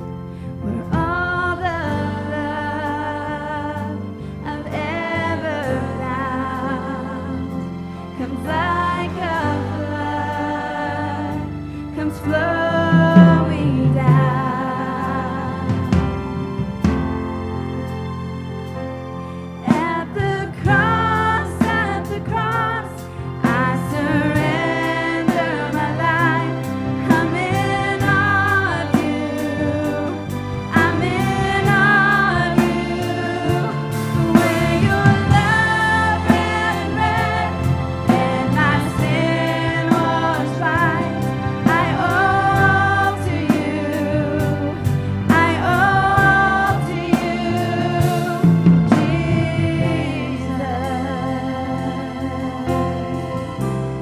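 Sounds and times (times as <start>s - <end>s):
voices singing with vibrato: 0.7s - 16.6s, 19.6s - 53.8s
band with steady drum beat: 12.6s - 17.7s, 19.7s - 54.0s.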